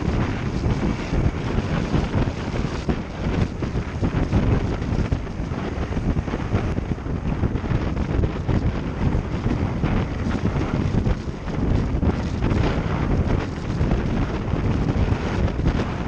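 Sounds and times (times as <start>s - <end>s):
motorcycle engine and road noise: 0.0s - 16.0s
wind buffeting microphone: 0.0s - 16.0s.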